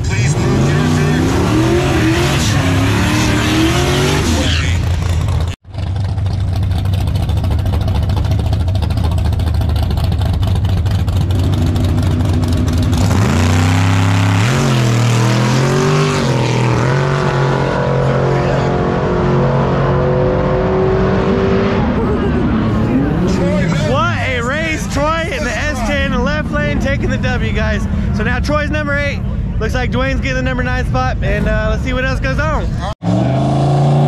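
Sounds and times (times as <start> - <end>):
engine revving up: 0.0 - 5.6, 11.1 - 28.2, 33.0 - 34.0
race car engines idling: 4.4 - 13.2, 21.8 - 33.0.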